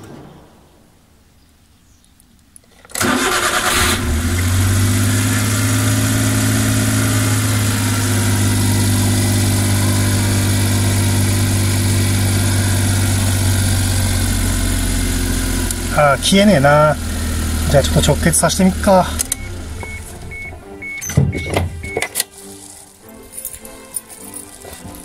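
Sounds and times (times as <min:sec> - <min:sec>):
starter motor cranking: 0:02.9 - 0:05.2, 0:07.3 - 0:22.0
van engine idling: 0:03.0 - 0:22.1.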